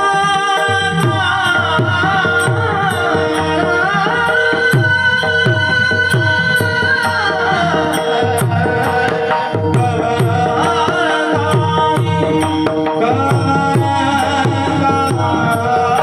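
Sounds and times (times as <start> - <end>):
people singing: 0.0 - 16.0.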